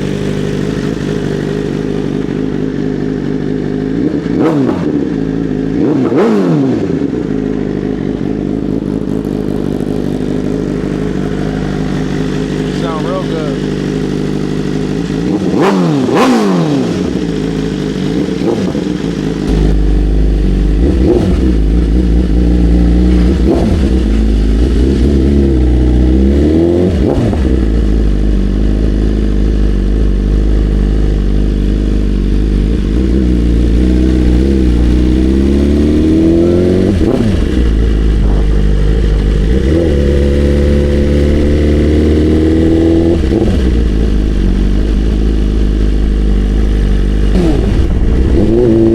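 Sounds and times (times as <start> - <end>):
motorcycle engine accelerating: 0.0 - 48.9
wind rumble on microphone: 34.6 - 41.5, 46.0 - 48.9.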